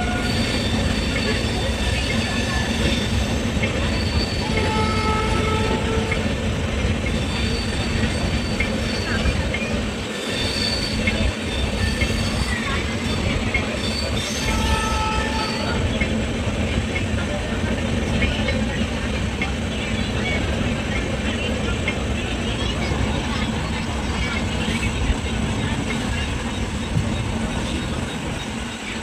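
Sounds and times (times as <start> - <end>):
wheel squeals: 0.0 - 16.2
train wheels rumbling: 0.0 - 29.0.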